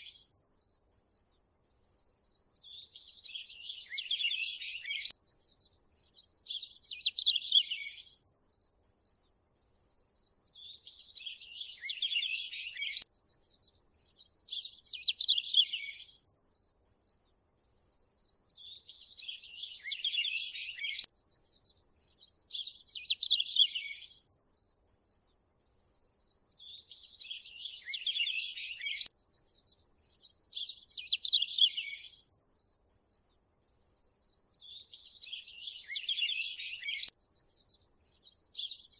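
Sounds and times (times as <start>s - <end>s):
high insect hiss: 0.0s - 38.9s
birds chirping: 26.8s - 29.1s.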